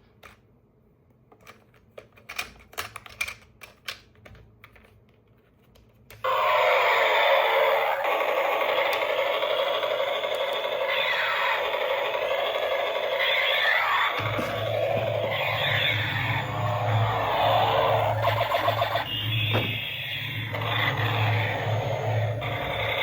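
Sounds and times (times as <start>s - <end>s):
loud electronic tone sweeping pitch: 9.7s - 23.0s.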